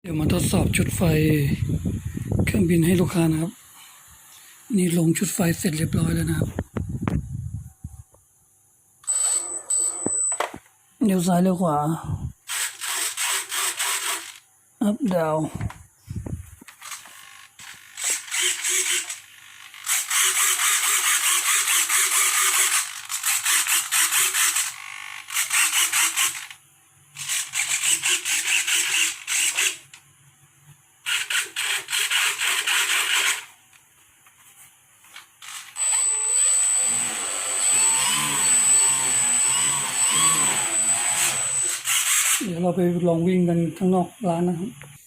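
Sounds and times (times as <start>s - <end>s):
servos whirring: 12.4s - 14.4s, 15.6s - 26.6s, 35.4s - 42.5s
electric motor whine: 35.4s - 42.4s.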